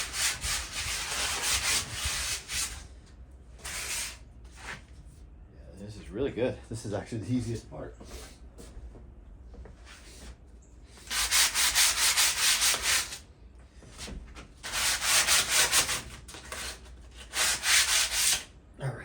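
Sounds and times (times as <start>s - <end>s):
sandpaper rubbing on metal: 11.0s - 13.2s, 14.6s - 18.5s.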